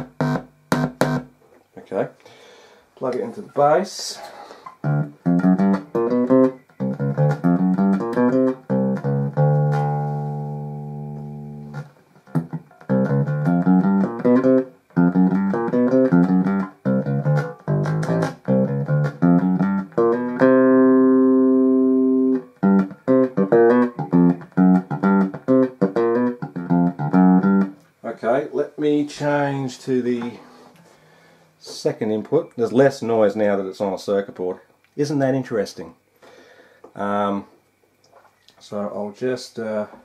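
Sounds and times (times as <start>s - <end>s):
electric bass guitar notes: 0.0s - 1.4s, 4.8s - 27.9s.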